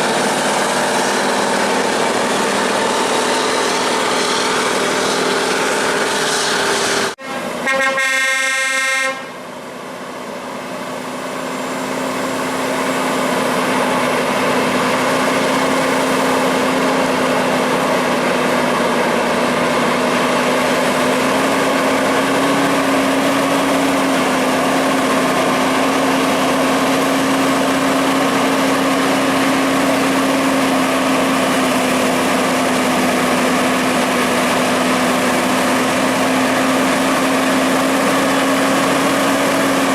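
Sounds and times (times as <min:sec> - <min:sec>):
heavy engine running: 0:00.0 - 0:39.9
truck air horn: 0:06.2 - 0:09.4.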